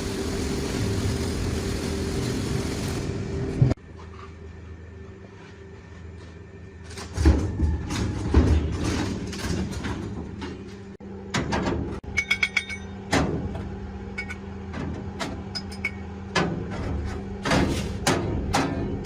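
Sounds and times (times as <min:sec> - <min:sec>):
steady low hum: 0:00.0 - 0:19.0
metal parts clinking: 0:12.1 - 0:13.0
ringing metallic pings: 0:12.1 - 0:13.0.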